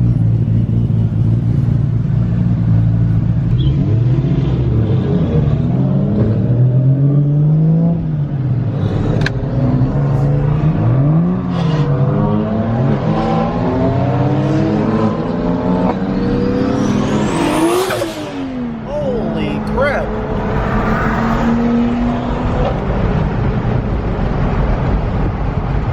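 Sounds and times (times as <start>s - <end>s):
car engine accelerating: 0.0s - 25.9s
rising whine: 9.2s - 23.8s.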